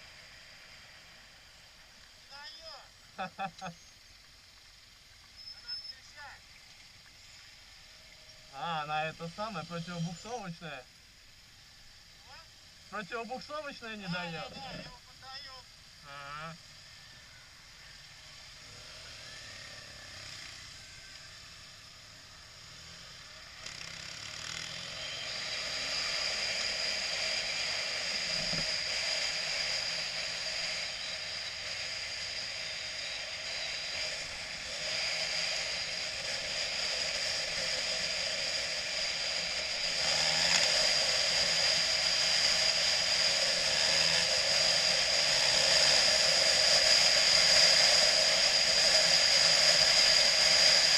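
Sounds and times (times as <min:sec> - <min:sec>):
road and wind noise: 0:00.0 - 0:50.9
motorcycle engine: 0:15.6 - 0:50.9.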